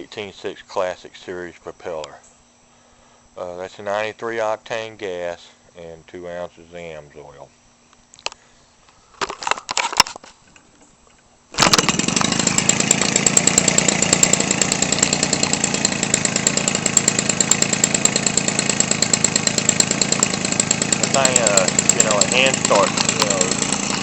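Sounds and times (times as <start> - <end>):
two-stroke engine running: 11.6 - 24.0.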